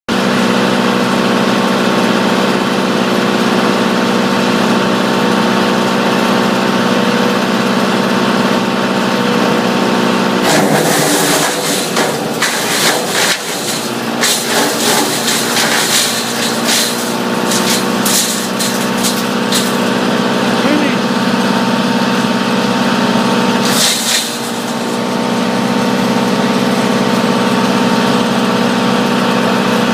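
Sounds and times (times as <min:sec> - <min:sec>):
wood chipper running: 0:00.1 - 0:29.9
wood cracking and crunching: 0:10.4 - 0:20.0.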